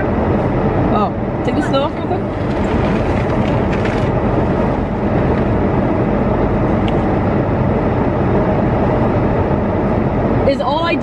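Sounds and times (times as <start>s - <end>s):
car engine running: 0.0s - 11.0s
wheels spinning in snow: 2.2s - 5.4s.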